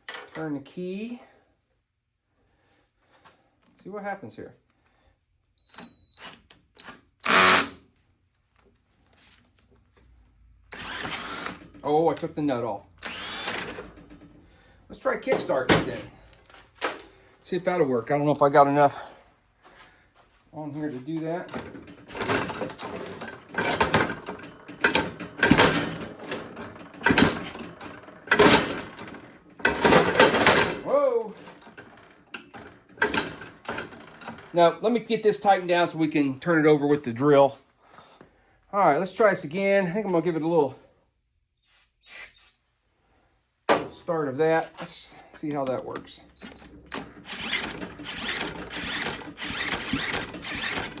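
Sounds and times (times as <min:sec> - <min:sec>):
electric drill spinning: 0:06.8 - 0:07.8, 0:10.7 - 0:11.7, 0:13.0 - 0:14.0, 0:46.5 - 0:51.0
engine kickstarter clattering: 0:21.5 - 0:30.8.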